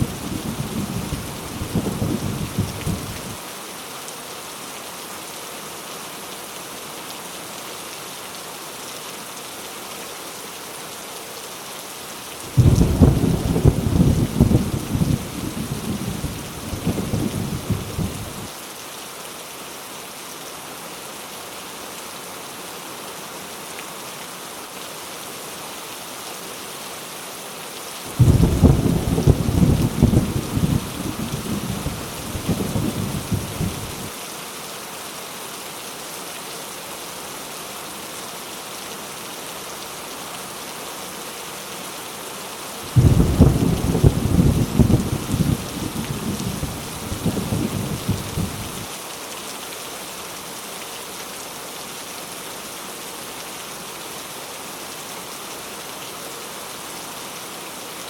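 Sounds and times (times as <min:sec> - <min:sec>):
heavy rain: 0:00.0 - 0:58.0
thunder cracks and rumbles: 0:12.6 - 0:16.2, 0:28.2 - 0:30.9, 0:43.0 - 0:48.7.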